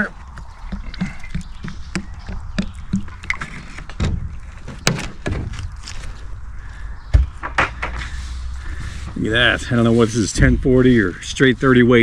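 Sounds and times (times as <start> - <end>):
heavy thump: 7.1 - 8.1.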